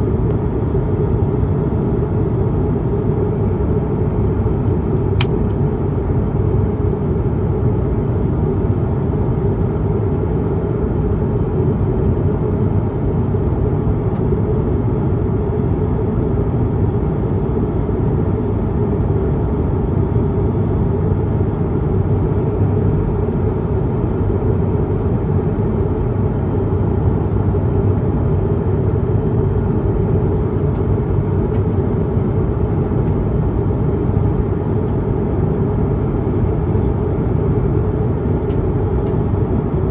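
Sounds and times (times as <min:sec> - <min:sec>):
airplane cabin rumble: 0:18.4 - 0:39.9.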